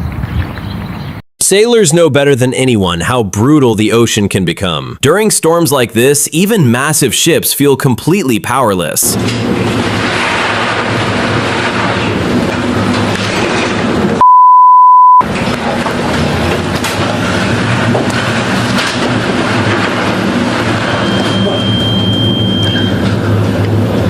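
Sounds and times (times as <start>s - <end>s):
censor bleep: 14.2s - 15.2s, 21.0s - 23.0s
rumbling roaring noise: 15.2s - 24.0s.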